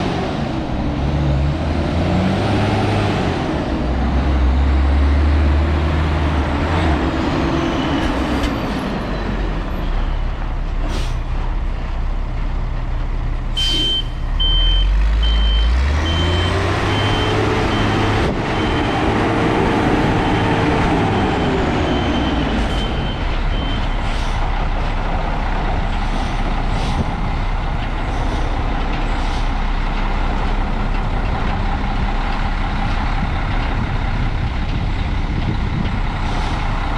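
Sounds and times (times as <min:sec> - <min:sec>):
truck crane engine revving: 0:00.0 - 0:36.9
high warning beeper: 0:13.6 - 0:19.1.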